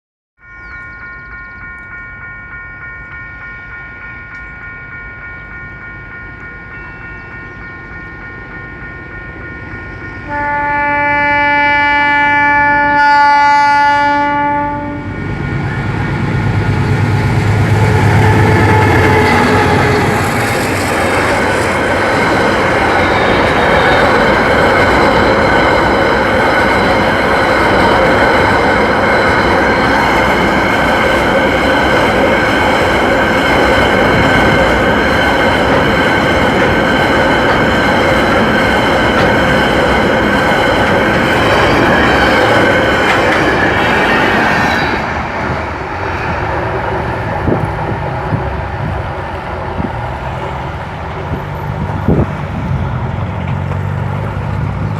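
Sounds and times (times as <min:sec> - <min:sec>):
locomotive horn blast: 0:10.2 - 0:15.3, 0:16.8 - 0:20.3
train wagons rolling on rails: 0:15.2 - 0:54.9.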